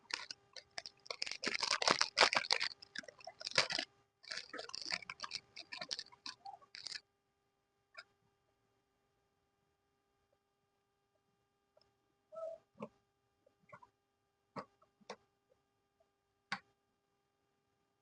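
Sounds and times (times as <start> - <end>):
crunching of crisp crust: 0.0 - 7.0.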